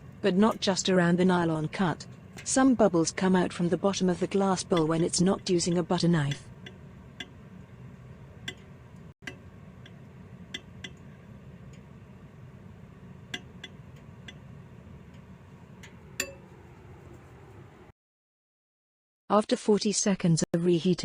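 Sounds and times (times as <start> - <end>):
steady low hum: 0.0 - 17.9
knife tapping glass bowl: 8.4 - 8.7, 13.3 - 14.4.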